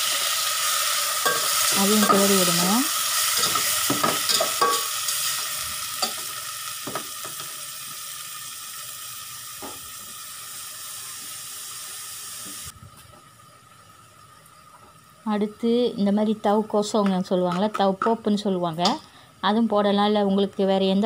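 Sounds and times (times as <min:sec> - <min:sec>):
meat sizzling in hot oil: 0:00.0 - 0:12.7.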